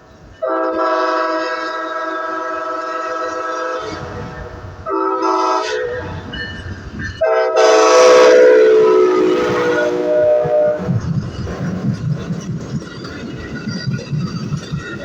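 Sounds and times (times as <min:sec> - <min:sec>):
train rumble: 0:00.0 - 0:15.0
locomotive air horn blasts: 0:00.4 - 0:06.2, 0:07.2 - 0:10.9.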